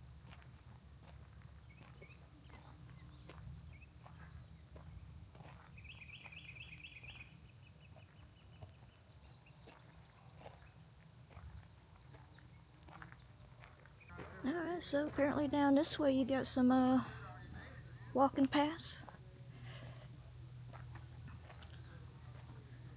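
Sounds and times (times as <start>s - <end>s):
soft footsteps on path: 0.0s - 6.5s, 7.8s - 22.9s
insect droning: 0.0s - 22.9s
bird chirping: 5.8s - 8.6s.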